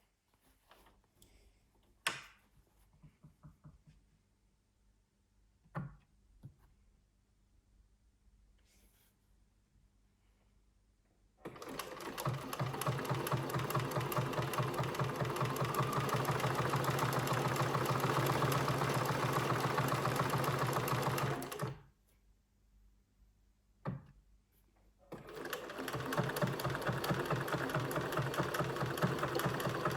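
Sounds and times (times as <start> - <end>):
sewing machine running: 11.5 - 21.8, 25.1 - 29.9.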